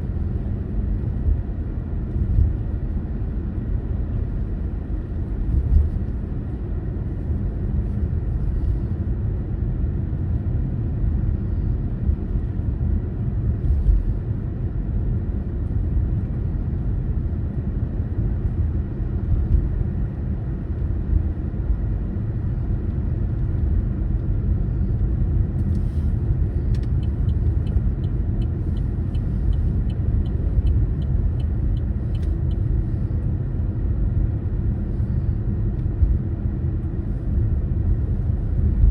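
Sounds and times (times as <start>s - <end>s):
car driving rumble: 0.0s - 38.9s
light ticks: 26.7s - 32.7s.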